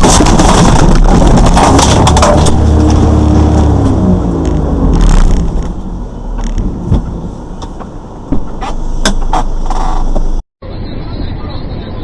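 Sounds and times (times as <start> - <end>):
vehicle engine and road rumble: 0.0 - 12.0
sharp knocks and clicks: 6.4 - 10.4.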